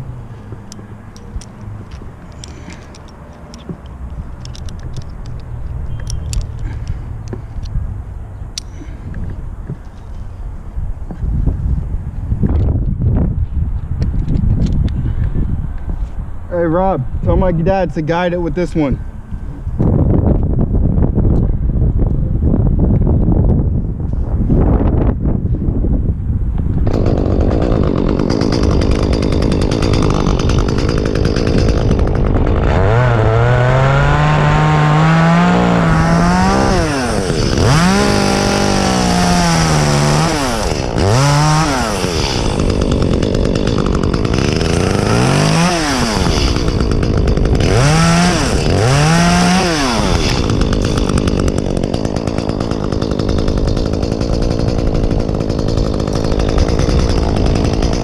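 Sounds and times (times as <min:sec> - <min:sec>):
chainsaw cutting wood: 0:00.5 - 0:07.5, 0:26.7 - 0:58.0.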